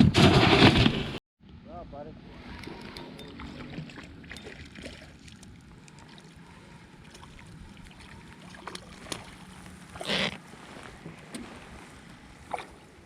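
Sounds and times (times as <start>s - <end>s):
boat engine hum: 1.5s - 13.0s.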